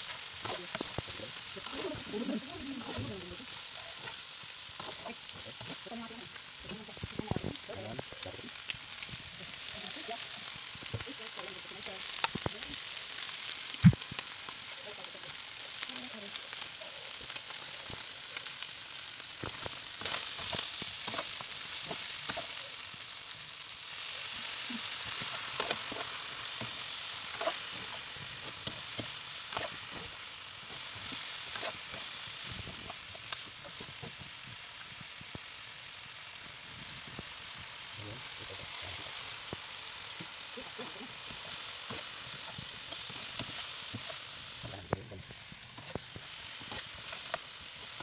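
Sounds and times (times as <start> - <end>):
chicken sizzling in a wok: 0.0 - 48.0.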